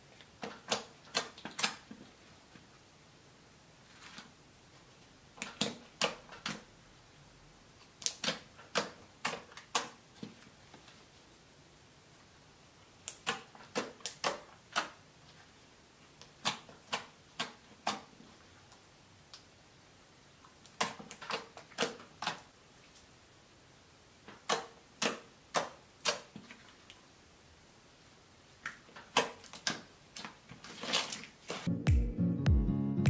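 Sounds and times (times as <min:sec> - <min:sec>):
slime clicking and popping: 0:13.0 - 0:15.0.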